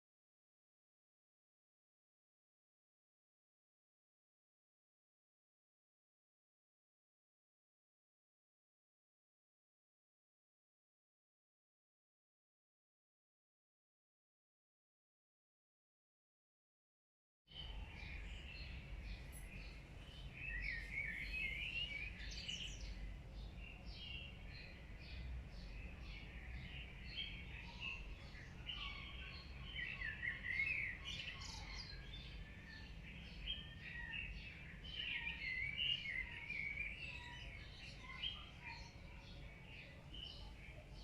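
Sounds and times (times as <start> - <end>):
birds chirping and calling: 17.5 - 41.0.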